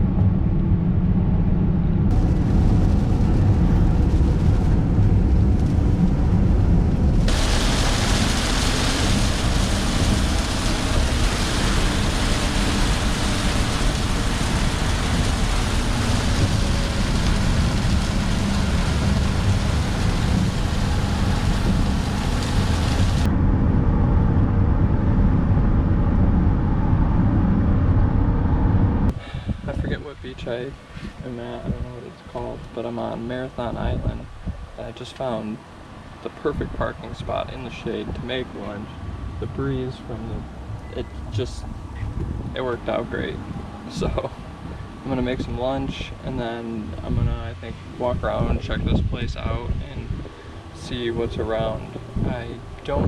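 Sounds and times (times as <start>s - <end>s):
road and engine rumble: 0.0s - 53.0s
heavy rain on vehicle: 2.1s - 23.3s, 40.4s - 53.0s.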